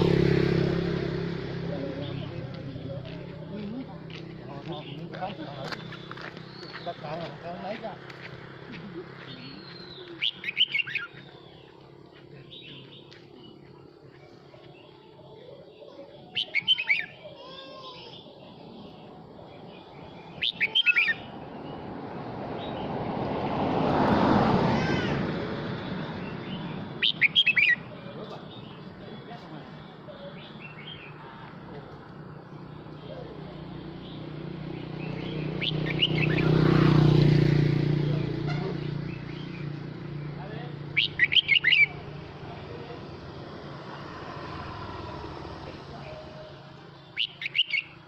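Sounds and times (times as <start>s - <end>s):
vehicle engine passing: 0.0s - 17.1s, 18.2s - 48.0s
high bird chirps: 9.2s - 21.9s, 26.2s - 29.0s, 33.8s - 37.0s, 38.9s - 42.2s, 46.9s - 48.0s
bird singing warbled whistles: 9.9s - 11.2s, 16.3s - 17.1s, 20.3s - 21.3s, 27.0s - 27.8s, 35.6s - 36.5s, 41.0s - 42.0s, 47.2s - 48.0s.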